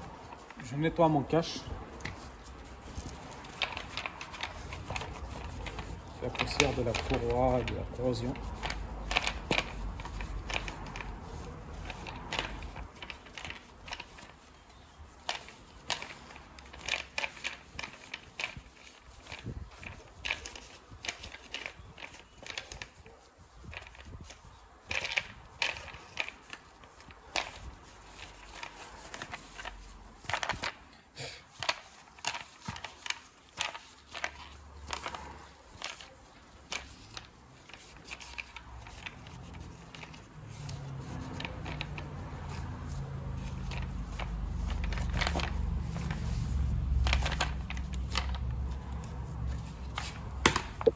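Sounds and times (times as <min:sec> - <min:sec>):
hand scrapes and clicks: 0:00.0 - 0:50.9.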